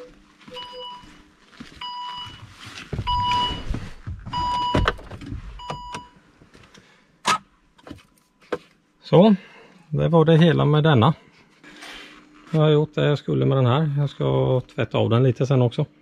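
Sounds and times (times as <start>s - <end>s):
parking sensor beeping: 0.0s - 1.1s, 1.8s - 2.4s, 3.0s - 3.7s, 4.3s - 6.2s.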